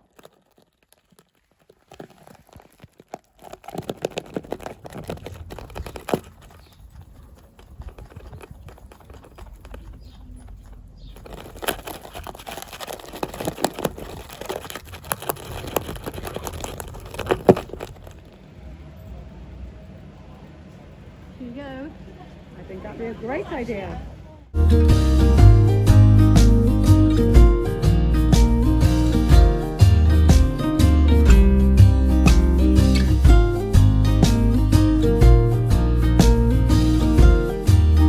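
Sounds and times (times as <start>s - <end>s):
packaging crinkling and clicking: 0.0s - 18.4s.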